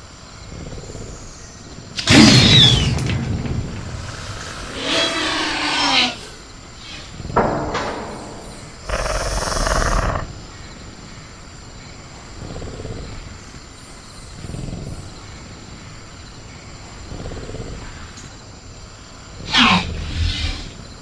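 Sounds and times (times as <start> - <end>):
high insect drone: 0.0 - 21.0
creature roaring: 8.9 - 10.3
low growling breaths: 8.9 - 10.3.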